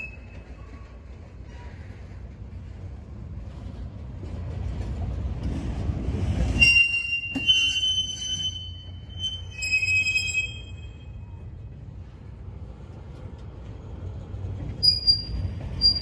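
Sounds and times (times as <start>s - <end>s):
high-pitched wheel squeal: 0.0s - 0.6s, 6.6s - 11.3s, 14.8s - 16.0s
freight train wheels rumbling: 0.0s - 16.0s.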